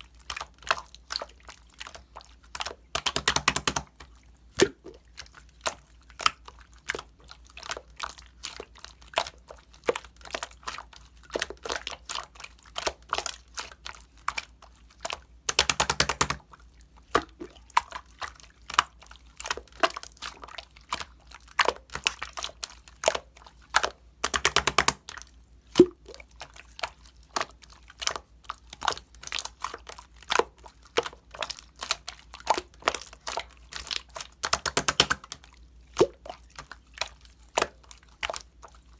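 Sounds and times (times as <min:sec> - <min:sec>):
close-up clicks and taps: 0:03.0 - 0:03.9, 0:15.5 - 0:16.4, 0:24.2 - 0:25.0, 0:34.4 - 0:35.4.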